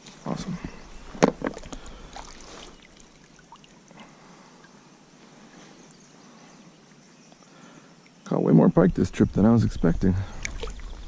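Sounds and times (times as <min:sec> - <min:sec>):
water trickling softly: 0:00.6 - 0:11.0
water splashing and dripping: 0:01.2 - 0:04.1, 0:10.2 - 0:11.0.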